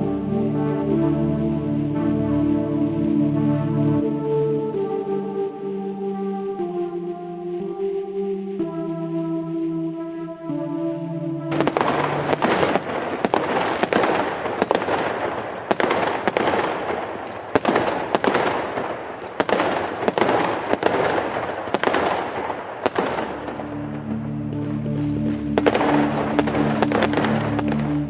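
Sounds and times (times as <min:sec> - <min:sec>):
background music: 0:00.0 - 0:14.4, 0:23.0 - 0:28.0
fireworks bangs: 0:11.6 - 0:23.4
fireworks crackling: 0:11.6 - 0:23.4.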